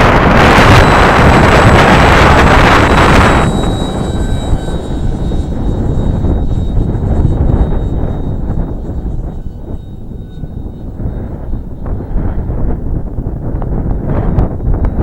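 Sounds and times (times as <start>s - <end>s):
model airplane motor whine: 0.0s - 15.0s
wind buffeting microphone: 0.0s - 15.0s.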